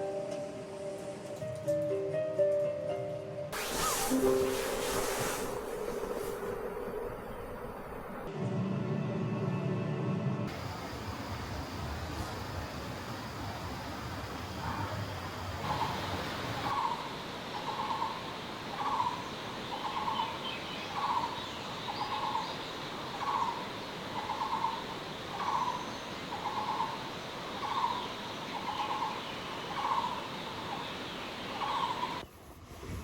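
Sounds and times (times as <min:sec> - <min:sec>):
river water rushing: 0:03.6 - 0:08.2.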